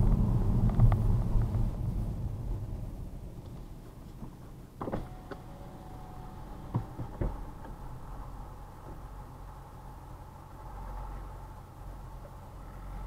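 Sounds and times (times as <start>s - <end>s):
idling engine rumble: 0.0s - 13.0s.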